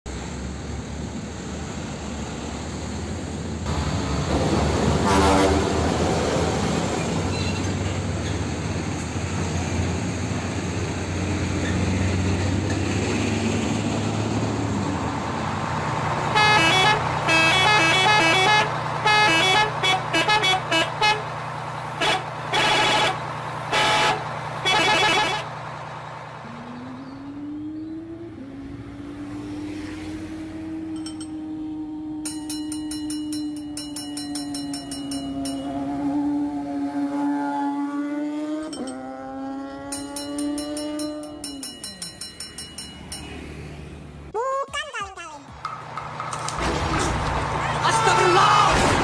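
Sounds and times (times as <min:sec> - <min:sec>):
vehicle engine rumbling: 0:00.1 - 0:44.4, 0:45.0 - 0:49.0
musical bus horn honking: 0:04.9 - 0:06.0, 0:16.2 - 0:25.6, 0:35.2 - 0:37.6
low hum with rising tone: 0:25.6 - 0:41.6.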